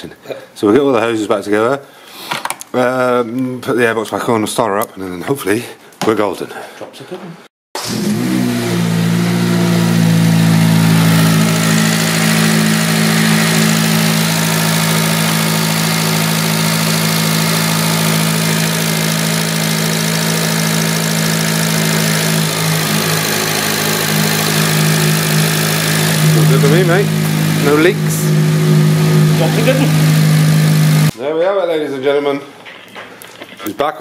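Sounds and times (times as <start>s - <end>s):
car engine idling: 9.0s - 31.1s.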